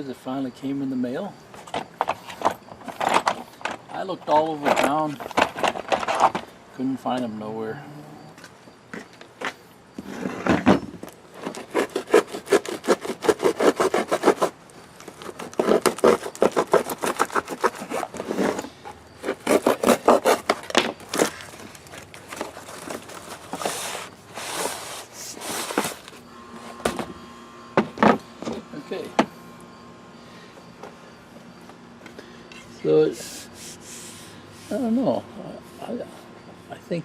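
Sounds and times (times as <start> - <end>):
rapid rubbing and scraping: 11.3 - 26.1.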